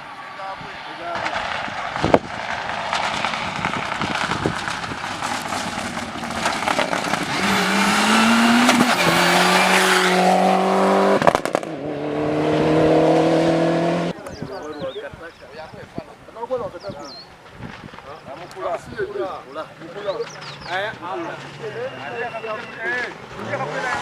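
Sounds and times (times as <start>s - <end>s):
rally car engine accelerating: 1.1s - 14.2s, 22.6s - 24.0s.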